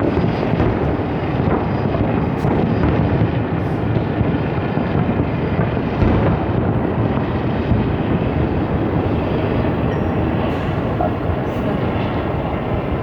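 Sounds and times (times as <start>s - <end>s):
fireworks booming rumble: 0.0s - 13.0s
wind on microphone: 0.0s - 13.0s.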